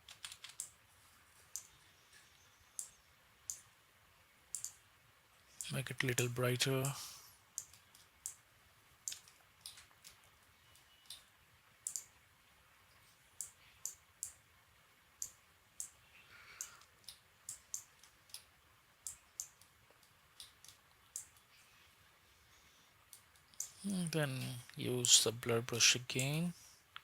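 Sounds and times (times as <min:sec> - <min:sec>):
computer mouse clicks: 0:00.0 - 0:00.8, 0:01.5 - 0:03.7, 0:04.5 - 0:04.8, 0:07.5 - 0:08.4, 0:09.0 - 0:12.2, 0:13.4 - 0:14.4, 0:15.2 - 0:16.0, 0:16.6 - 0:21.5, 0:23.1 - 0:23.8.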